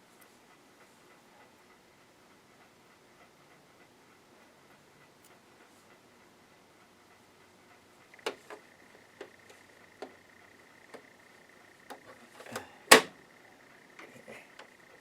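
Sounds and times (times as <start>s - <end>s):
sewing machine clicks and knocks: 8.2s - 8.6s, 11.9s - 13.1s.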